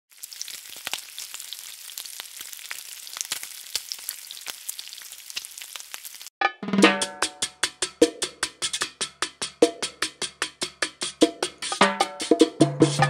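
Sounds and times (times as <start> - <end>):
food frying in hot oil: 0.1 - 6.3.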